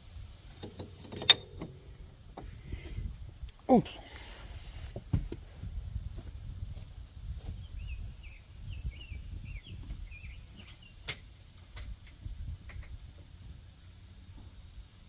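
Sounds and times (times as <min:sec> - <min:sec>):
small bird chirping: 0:07.6 - 0:11.1.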